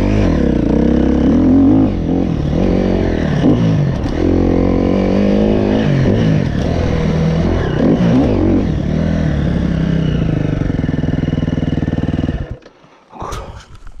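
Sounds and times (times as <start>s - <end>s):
motocross bike engine revving and idling: 0.0s - 12.8s.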